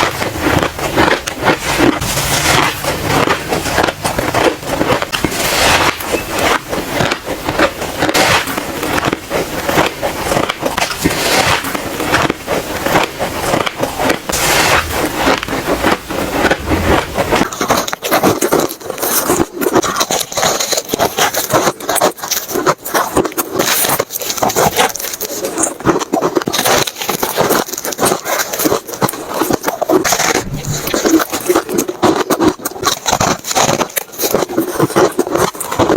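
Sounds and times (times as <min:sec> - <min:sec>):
ice being chewed: 0:00.0 - 0:35.9.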